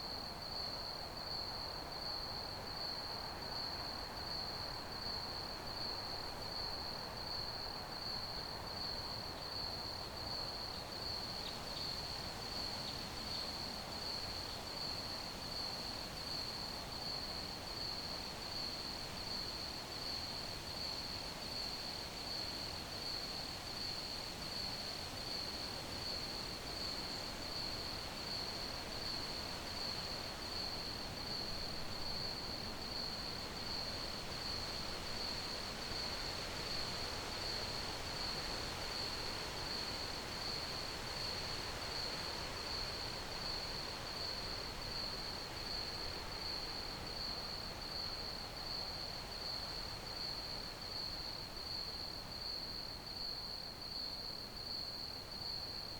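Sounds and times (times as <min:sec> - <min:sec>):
background hiss: 0:10.6 - 0:55.9
crickets chirping: 0:12.8 - 0:55.9.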